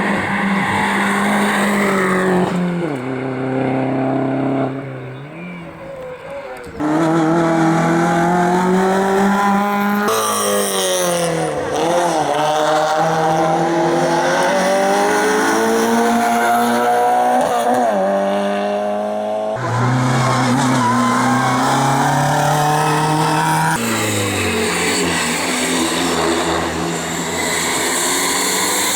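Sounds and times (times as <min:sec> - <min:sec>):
racing car engines revving: 0:00.0 - 0:28.9
tyre squeal: 0:19.6 - 0:25.3.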